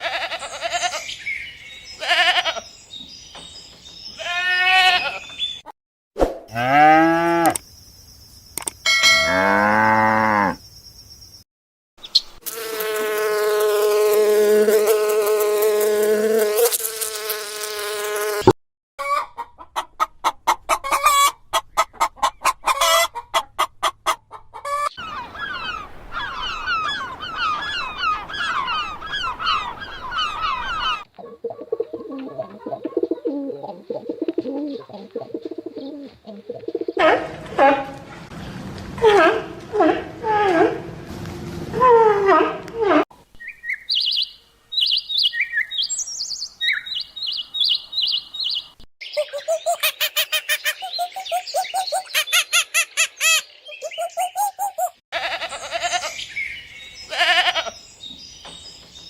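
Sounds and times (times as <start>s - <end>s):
birds chirping and clucking: 19.0s - 40.2s, 43.6s - 59.0s
long held animal call: 57.1s - 57.7s.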